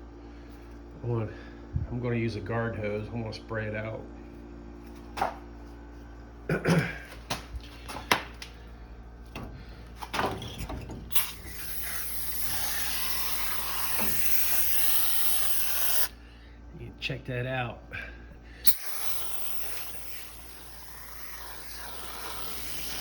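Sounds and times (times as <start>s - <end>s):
aerosol can spraying hiss: 11.1s - 16.1s, 18.6s - 23.0s.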